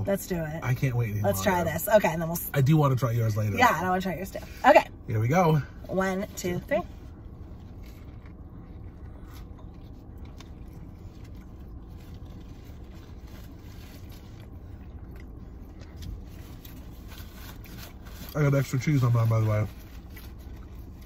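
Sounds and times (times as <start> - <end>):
low rumble inside car: 0.0 - 21.0
people chewing food: 6.9 - 21.0.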